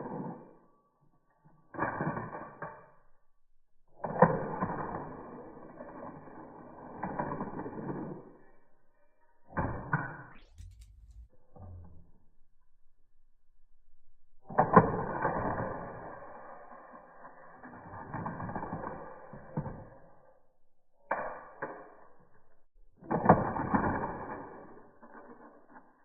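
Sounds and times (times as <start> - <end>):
toy cars rattling on plastic track: 4.0 - 8.4, 14.5 - 20.1, 23.1 - 26.0.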